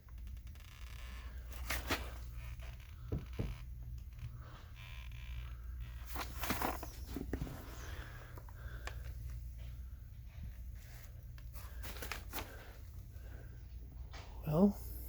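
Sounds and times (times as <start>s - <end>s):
low steady hum: 0.0s - 15.0s
person crawling rustling and scraping: 5.8s - 13.4s.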